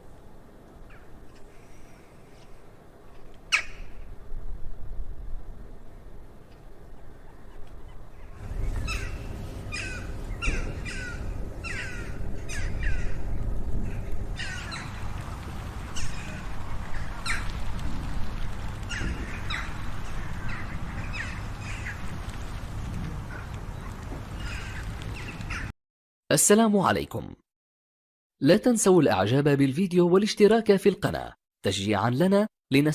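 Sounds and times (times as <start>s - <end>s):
birds calling: 6.9s - 25.7s.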